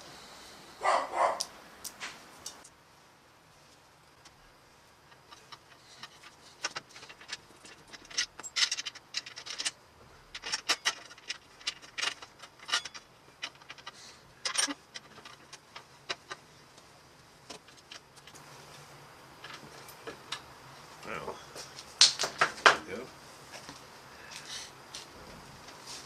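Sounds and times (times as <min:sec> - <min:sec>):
hardware and tools clinking: 0:05.0 - 0:16.8, 0:17.4 - 0:23.8.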